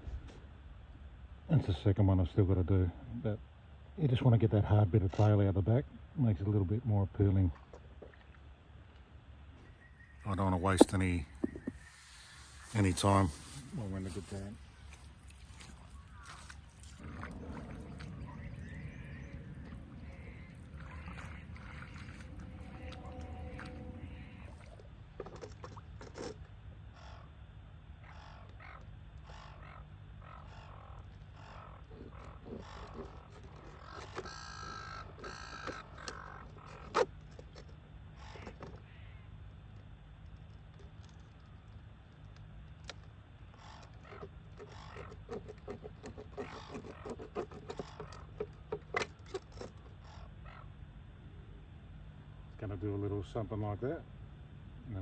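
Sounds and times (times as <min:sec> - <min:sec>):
seagulls squawking: 0:15.6 - 0:24.8, 0:28.0 - 0:37.0
low rumble: 0:16.9 - 0:25.1.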